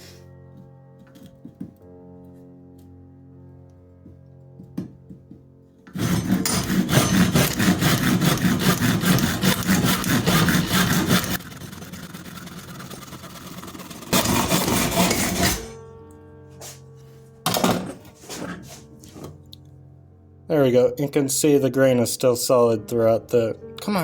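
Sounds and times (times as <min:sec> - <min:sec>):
saw cutting through wood: 0:05.9 - 0:15.8.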